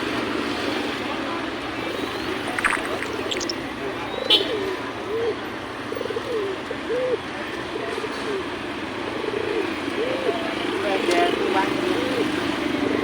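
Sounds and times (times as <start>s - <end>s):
passing traffic hum: 0.0s - 7.6s, 8.4s - 13.0s
pigeons cooing: 4.4s - 13.0s.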